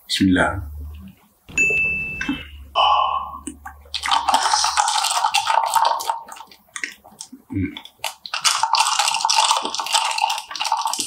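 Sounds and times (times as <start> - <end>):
slurping through a straw: 4.0 - 11.0.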